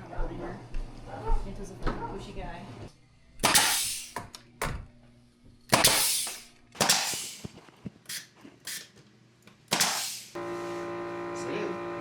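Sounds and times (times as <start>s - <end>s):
loud sharp bangs with hissing tail: 3.4s - 4.2s, 5.7s - 7.5s, 9.7s - 10.4s.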